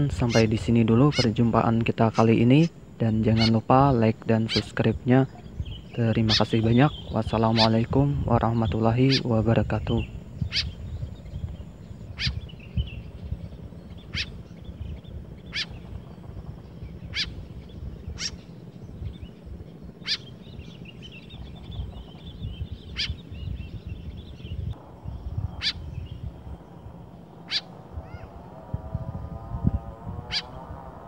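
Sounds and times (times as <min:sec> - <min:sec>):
faint bird twittering: 0:00.0 - 0:31.0
wind rumble on microphone: 0:00.0 - 0:31.0
bird giving short sharp calls: 0:12.2 - 0:12.4, 0:15.5 - 0:15.8, 0:17.1 - 0:17.4, 0:18.2 - 0:18.4, 0:20.0 - 0:20.3.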